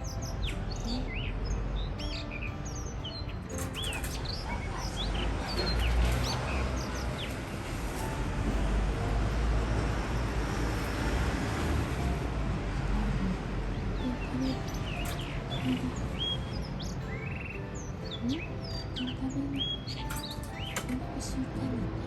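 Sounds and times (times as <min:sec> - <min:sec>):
bird whistling song: 0:00.0 - 0:08.1, 0:13.8 - 0:21.0.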